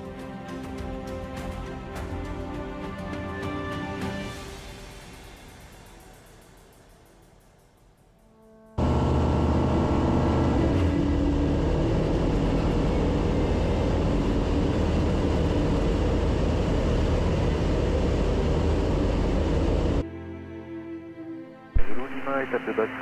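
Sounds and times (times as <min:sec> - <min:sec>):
light aircraft engine and propeller: 0:00.0 - 0:06.7, 0:08.8 - 0:20.0.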